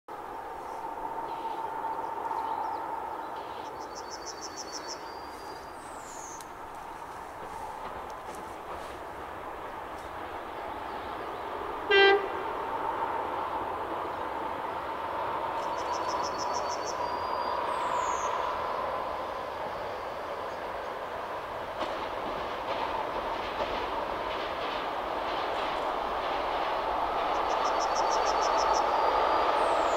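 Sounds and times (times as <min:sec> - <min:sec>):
train running noise: 0:00.1 - 0:29.9
train horn blast: 0:11.8 - 0:12.5.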